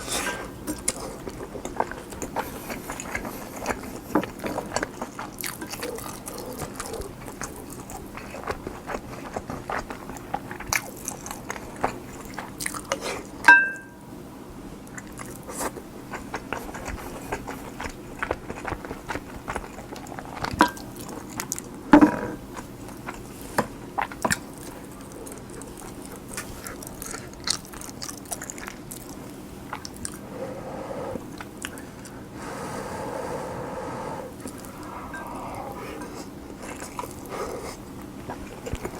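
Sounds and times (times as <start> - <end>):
chewing with wet mouth clicks: 0.6 - 13.5, 14.8 - 30.2, 31.2 - 32.3, 34.4 - 38.9
spoon clinking on dish: 13.5 - 14.0.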